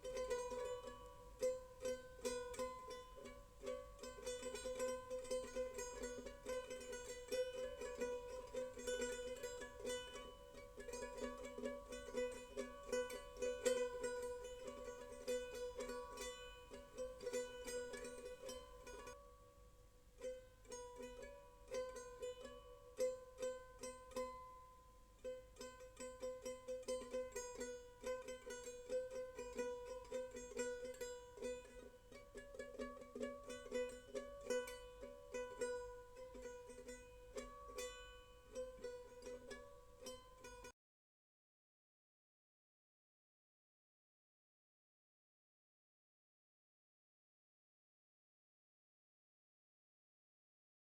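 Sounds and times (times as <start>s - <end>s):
plucked string melody: 0.0s - 40.7s.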